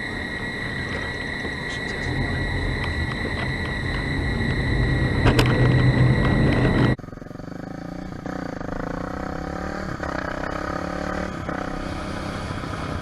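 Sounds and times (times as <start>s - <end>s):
vehicle engine accelerating: 0.0s - 13.0s.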